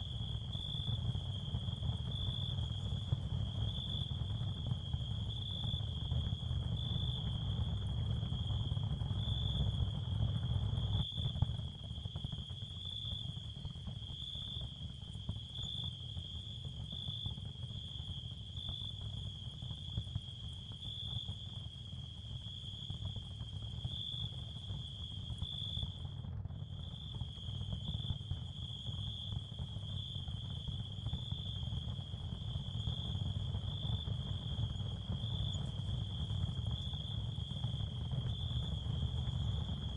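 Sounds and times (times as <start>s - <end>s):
constant low rumble: 0.0s - 39.9s
crickets chirring: 26.8s - 39.9s.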